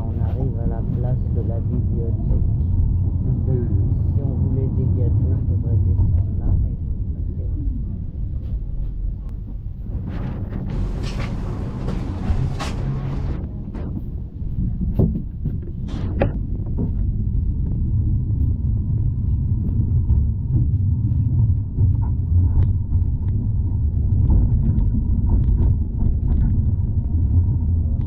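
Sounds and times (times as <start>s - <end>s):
tram rumbling: 0.0s - 22.2s.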